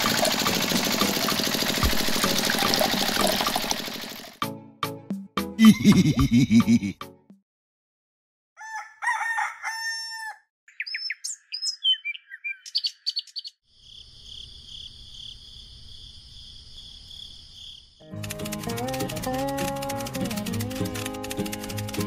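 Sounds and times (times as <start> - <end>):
rooster crowing: 8.6 - 10.5
small birds chirping: 10.7 - 15.4.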